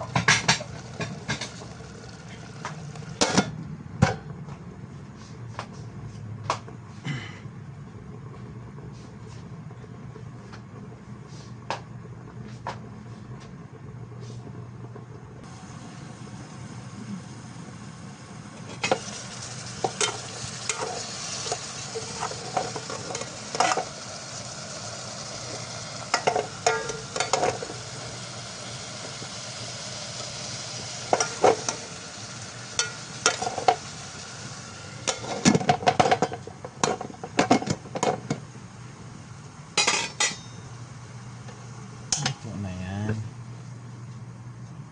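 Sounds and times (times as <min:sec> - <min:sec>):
fish sizzling in hot oil: 0:00.0 - 0:03.4, 0:15.5 - 0:38.0
low steady hum: 0:00.0 - 0:44.9.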